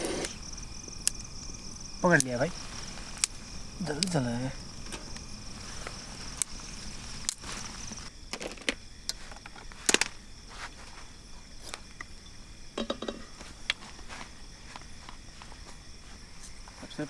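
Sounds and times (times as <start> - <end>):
crickets trilling: 0.0 - 17.0
sharp clicks and knocks: 12.8 - 13.3.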